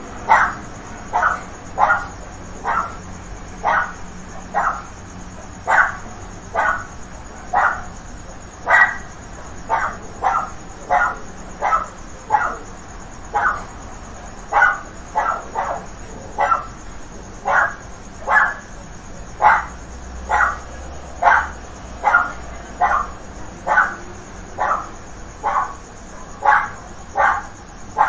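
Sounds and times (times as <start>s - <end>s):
dog barking: 0.3s - 3.0s, 3.6s - 4.9s, 5.6s - 6.9s, 7.5s - 7.9s, 8.7s - 9.1s, 9.7s - 12.7s, 13.3s - 13.7s, 14.5s - 16.8s, 17.4s - 18.7s, 19.4s - 28.0s.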